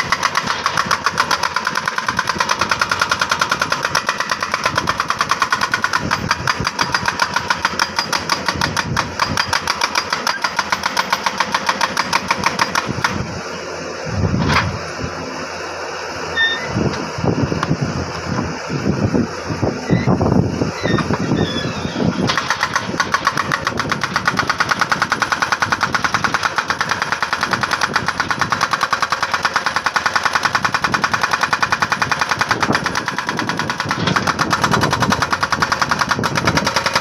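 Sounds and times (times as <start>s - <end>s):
jackhammer hammering rock: 0.0s - 13.5s, 20.9s - 37.0s.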